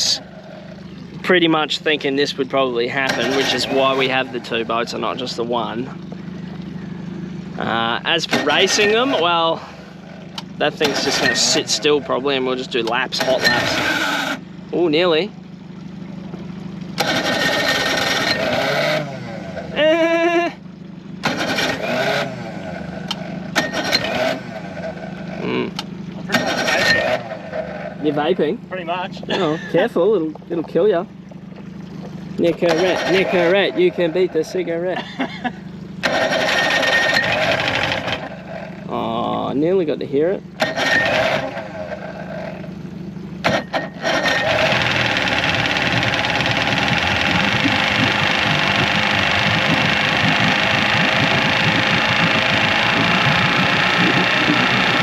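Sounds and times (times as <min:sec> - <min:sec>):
outboard motor idling: 0:00.0 - 0:55.0
rushing bursts of noise: 0:43.5 - 0:55.0.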